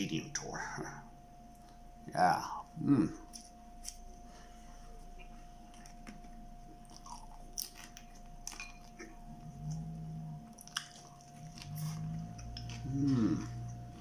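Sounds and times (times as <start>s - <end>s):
person chewing food: 3.2s - 14.0s
short low hum: 8.2s - 14.0s.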